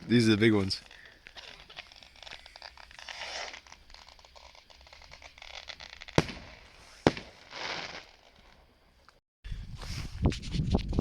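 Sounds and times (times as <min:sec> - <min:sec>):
fireworks crackling: 0:00.0 - 0:09.2
fireworks sharp bangs: 0:01.3 - 0:08.7.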